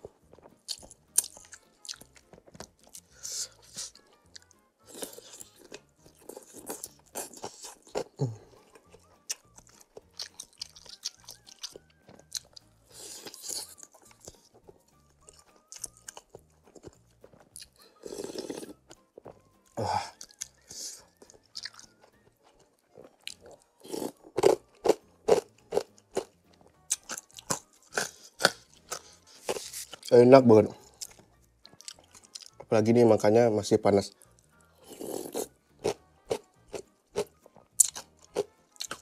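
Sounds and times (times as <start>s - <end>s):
wet chewing: 0.0s - 30.1s, 30.8s - 32.7s, 34.1s - 39.0s
slurping noodles: 12.9s - 13.8s, 18.0s - 18.8s, 34.8s - 36.0s.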